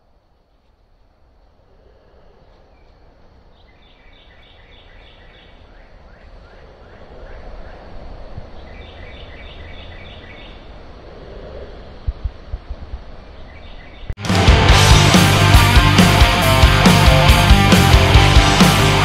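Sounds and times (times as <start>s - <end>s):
songbird chirping: 0.0s - 12.5s, 13.1s - 14.2s.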